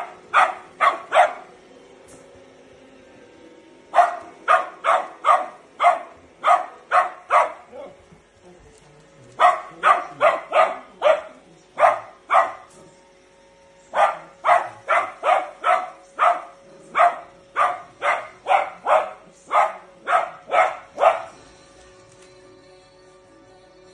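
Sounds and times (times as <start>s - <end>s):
small dog barking: 0.0s - 1.5s, 3.9s - 8.0s, 9.4s - 12.7s, 13.9s - 21.4s.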